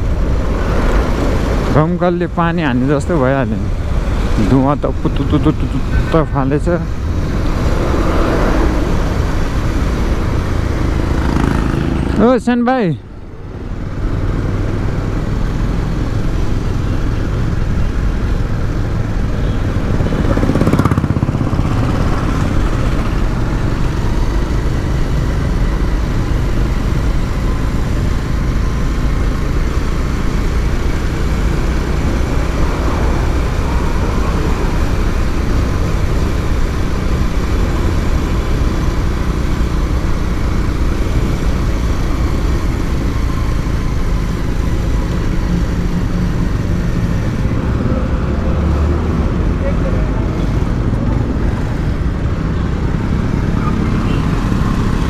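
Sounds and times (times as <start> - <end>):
motorcycle engine and road noise: 0.0 - 55.0
vehicle passing by: 5.3 - 12.4, 18.9 - 24.1, 31.0 - 36.0, 43.8 - 55.0.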